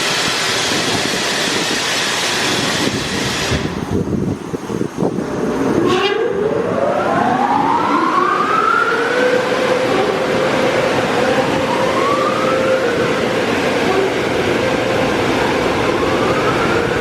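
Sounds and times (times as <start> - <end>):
car wash machinery running: 6.5 - 17.0.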